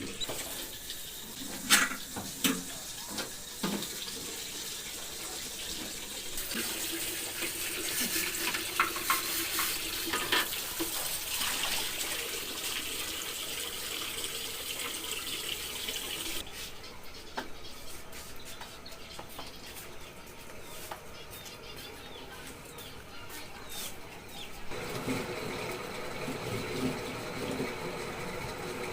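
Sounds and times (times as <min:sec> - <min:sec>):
items clattering while rinsed: 0:00.0 - 0:12.8
tap water running into sink: 0:00.0 - 0:16.4, 0:24.7 - 0:28.9.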